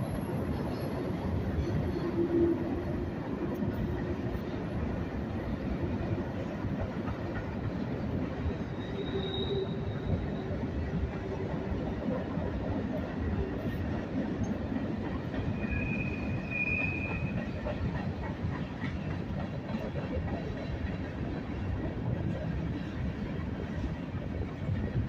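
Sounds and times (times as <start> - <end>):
freight train rumbling on rails: 0.0 - 25.0
high-pitched wheel squeal: 8.7 - 10.4, 15.5 - 17.4.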